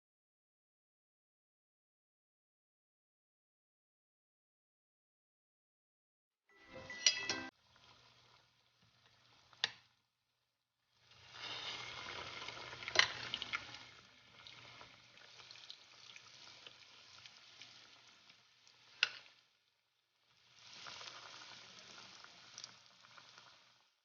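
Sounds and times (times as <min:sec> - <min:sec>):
food deep-frying in oil: 0:06.6 - 0:24.0.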